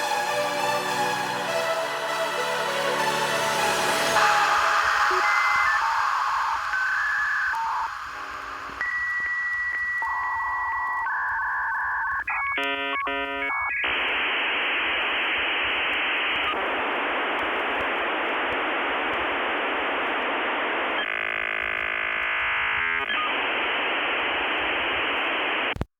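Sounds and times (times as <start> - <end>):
modem line noise hiss: 3.0 - 25.9
buzzing stacked modem tones: 3.7 - 25.9
keypad dialing tones: 4.9 - 14.0.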